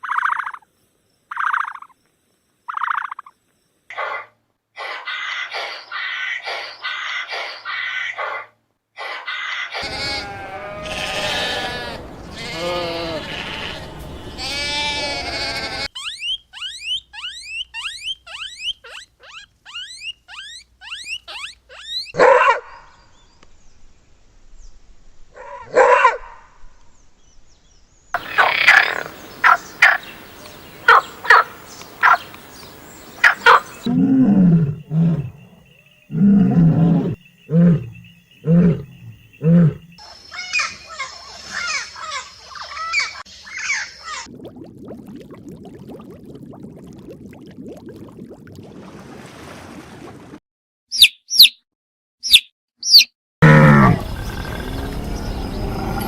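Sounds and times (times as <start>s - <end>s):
loud animal calls: 9.0s - 22.2s, 28.2s - 32.3s, 33.1s - 44.0s
drawn-out pitched animal call: 9.8s - 22.2s, 28.2s - 32.3s, 33.2s - 42.2s, 53.4s - 56.0s.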